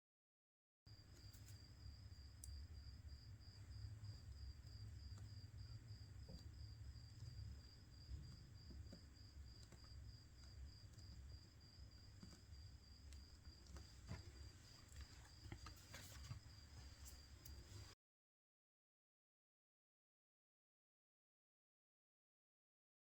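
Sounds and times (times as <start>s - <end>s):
cricket chirping: 0.9s - 18.0s
faint clicks: 6.2s - 17.9s.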